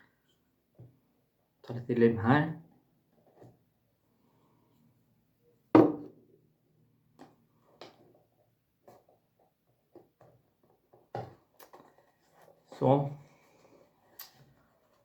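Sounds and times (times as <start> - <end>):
loud knock on table: 5.8 - 6.1.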